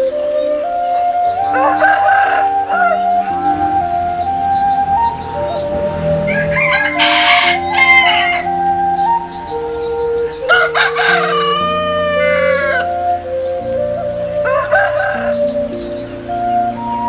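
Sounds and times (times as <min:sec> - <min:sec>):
slow background music: 0:00.0 - 0:17.0
rooster crowing: 0:01.4 - 0:03.8, 0:06.1 - 0:08.6, 0:10.4 - 0:12.9, 0:14.4 - 0:15.5.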